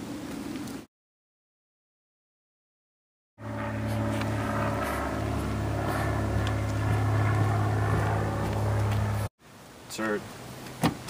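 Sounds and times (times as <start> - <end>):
car engine low drone: 3.4 - 9.3.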